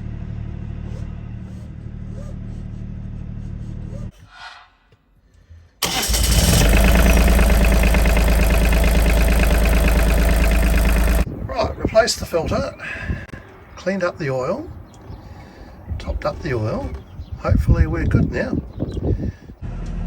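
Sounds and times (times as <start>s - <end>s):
diesel engine chugging: 5.8s - 11.3s.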